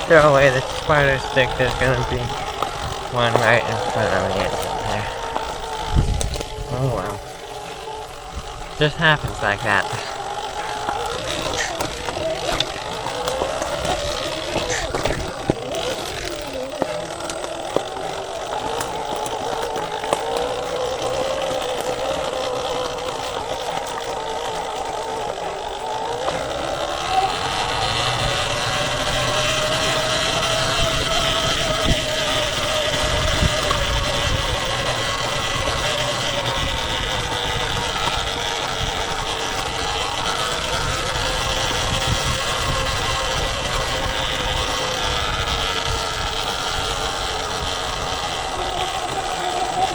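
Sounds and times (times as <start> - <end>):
knocks from trail bumps: 0.0 - 46.1
electric motor whine: 0.0 - 49.9
wind rumble on microphone: 4.5 - 7.4, 27.4 - 49.2.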